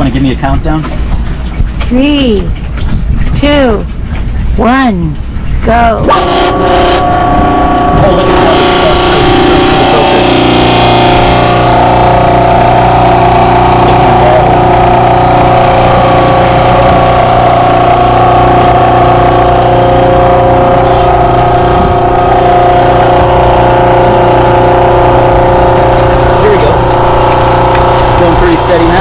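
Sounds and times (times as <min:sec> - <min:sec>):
electric motor and pump humming: 0:06.0 - 0:29.0.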